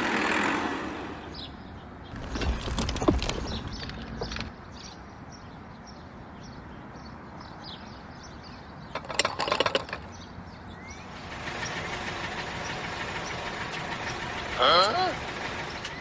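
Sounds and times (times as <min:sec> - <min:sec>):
clattering clicks: 0:09.0 - 0:10.1.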